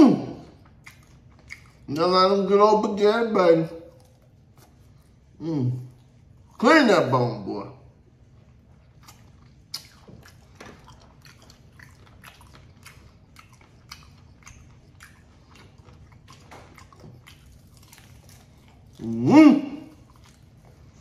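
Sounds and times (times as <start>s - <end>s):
chewing crispy fried chicken: 0.0s - 3.0s, 3.7s - 6.7s, 8.0s - 21.0s
mouth clicks and smacks: 0.6s - 2.0s, 9.0s - 17.6s.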